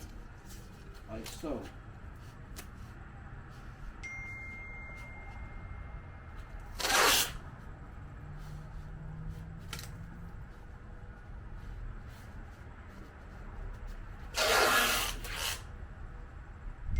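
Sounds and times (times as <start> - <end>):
low steady hum: 0.0 - 16.9
masking tape ripping off roll: 6.7 - 7.4, 14.2 - 15.7.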